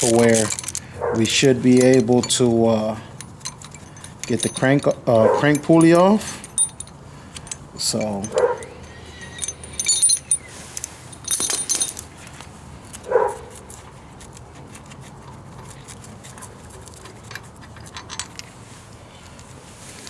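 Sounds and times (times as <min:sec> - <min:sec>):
bolts and tools clinking: 0:00.0 - 0:12.3, 0:17.1 - 0:18.6
dog barking: 0:01.0 - 0:01.3, 0:05.2 - 0:05.5, 0:08.4 - 0:08.8, 0:13.1 - 0:13.5.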